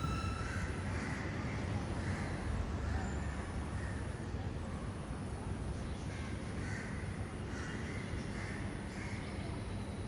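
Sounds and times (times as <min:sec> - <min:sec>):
low background rumble: 0:00.0 - 0:01.6.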